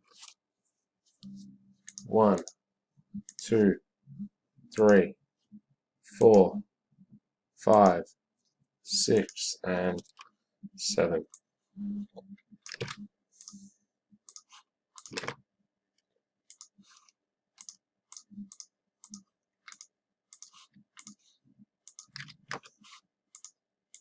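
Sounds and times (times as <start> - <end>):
mouse and keyboard clicking: 12.6 - 13.6, 14.2 - 15.4, 16.5 - 21.2, 21.9 - 24.0.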